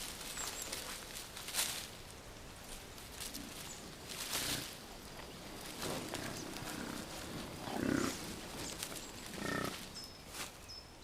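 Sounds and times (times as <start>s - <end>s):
bison grunting: 5.8s - 8.4s, 9.3s - 9.8s.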